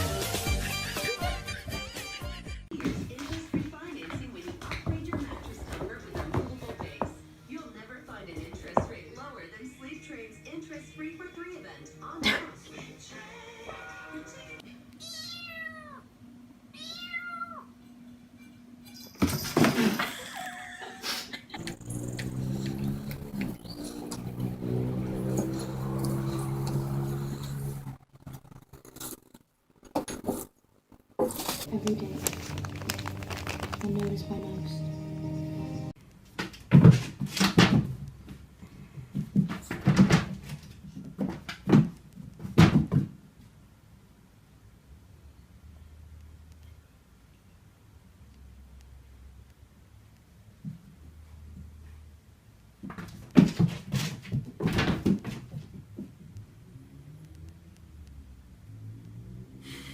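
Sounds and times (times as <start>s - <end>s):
cat meowing: 15.0s - 16.1s, 16.7s - 17.8s.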